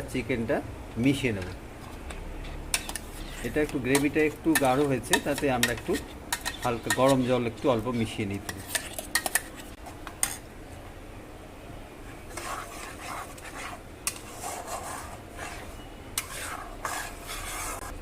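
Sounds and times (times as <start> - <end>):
metal spoon scraping thick gravy: 1.9 - 10.4, 12.3 - 18.0.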